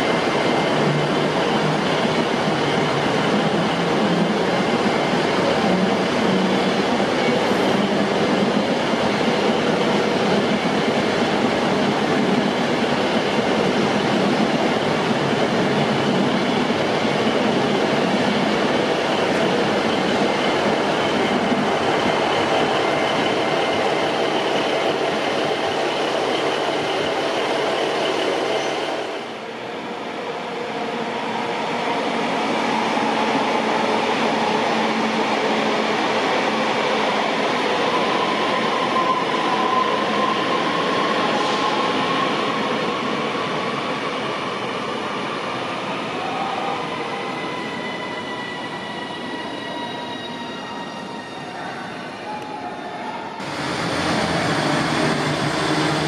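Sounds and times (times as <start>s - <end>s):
electric train running past: 53.2s - 56.0s
train whine: 53.2s - 56.0s.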